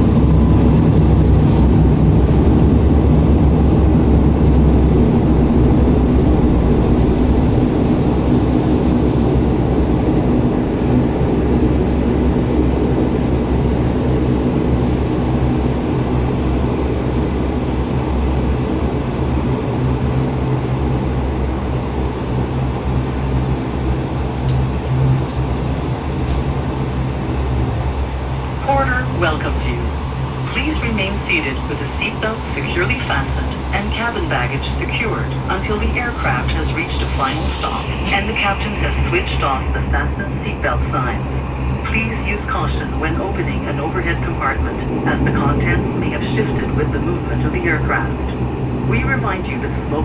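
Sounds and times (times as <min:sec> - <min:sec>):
turboprop engines droning in cabin: 0:00.0 - 0:50.0.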